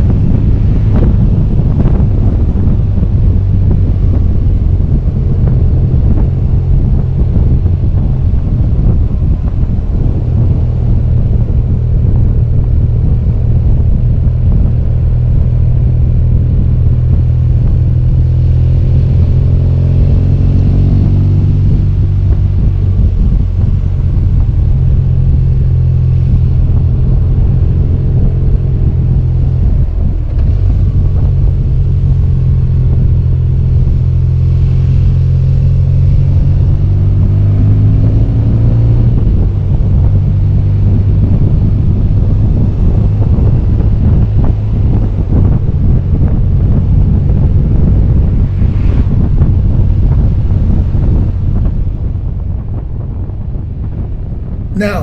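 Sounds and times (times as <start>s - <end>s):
motorcycle engine rumbling: 0.0s - 36.7s
road and wind noise: 0.0s - 55.0s.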